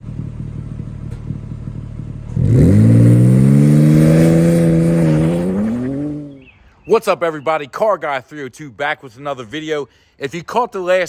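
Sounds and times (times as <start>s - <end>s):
car engine idling and revving: 0.0s - 6.5s.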